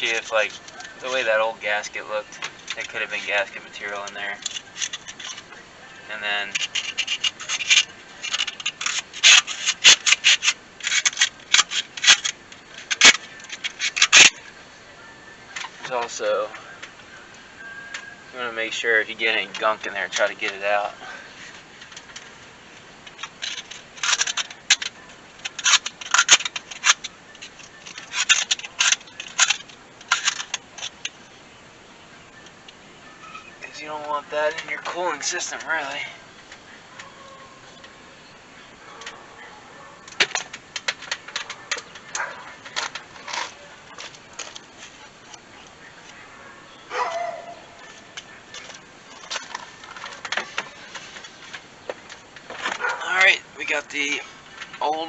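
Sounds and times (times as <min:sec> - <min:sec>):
metal tools clinking: 0:00.0 - 0:05.6, 0:38.8 - 0:55.0
brief squeak: 0:33.2 - 0:33.6.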